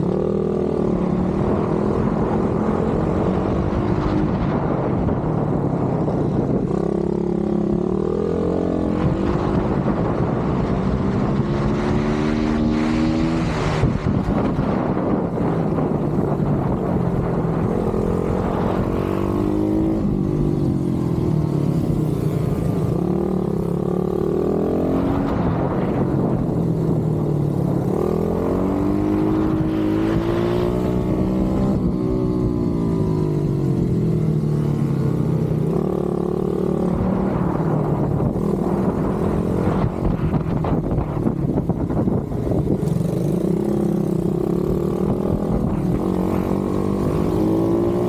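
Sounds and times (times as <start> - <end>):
pit bike engine revving: 11.2 - 48.0.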